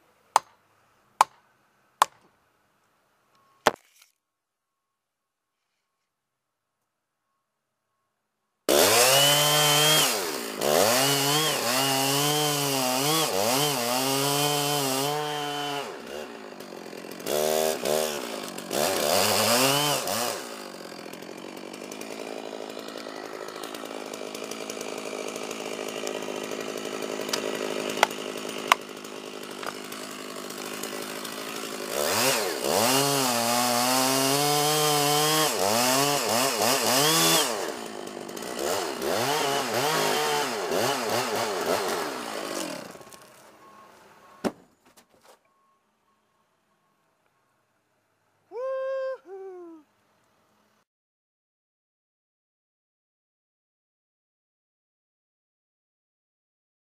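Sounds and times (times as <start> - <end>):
chainsaw cutting wood: 8.7 - 44.6.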